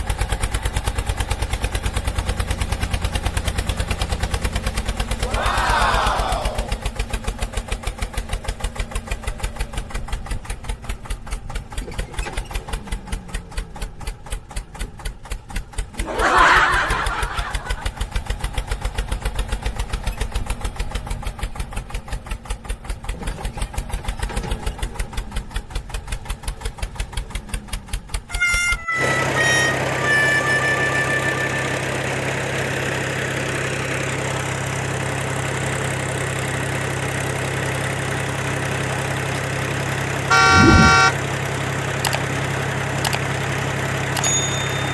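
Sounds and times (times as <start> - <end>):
small engine chugging: 0.0 - 44.9
short falling tones: 40.3 - 41.1.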